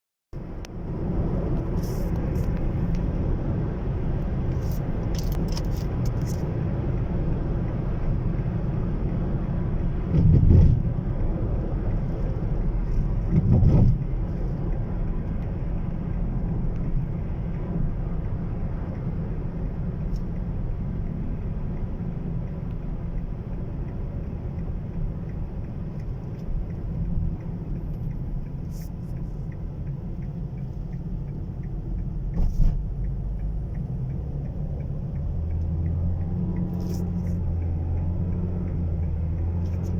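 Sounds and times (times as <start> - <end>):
car rumbling on the move: 0.4 - 39.9.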